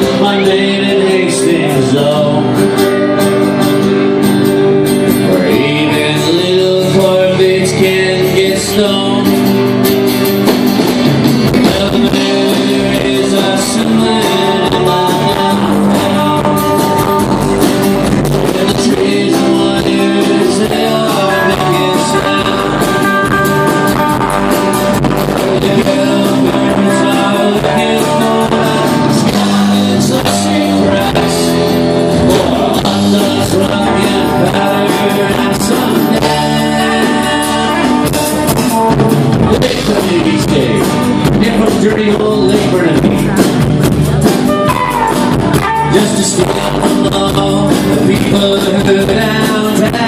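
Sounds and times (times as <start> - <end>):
drum kit playing: 0.0 - 50.0
guitars playing: 0.0 - 50.0.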